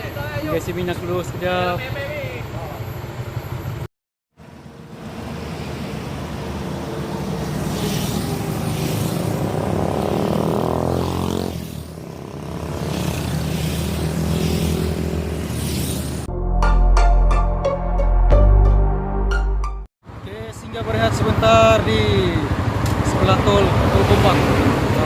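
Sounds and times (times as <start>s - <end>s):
motorcycle engine accelerating: 7.5s - 16.3s.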